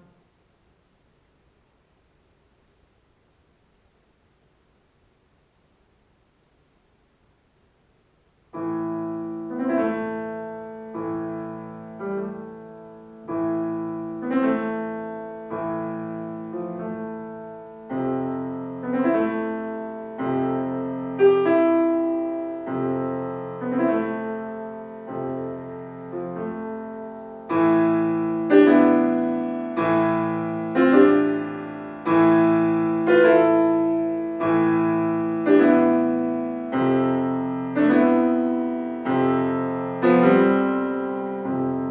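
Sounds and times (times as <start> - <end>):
solo piano piece: 8.4 - 41.9.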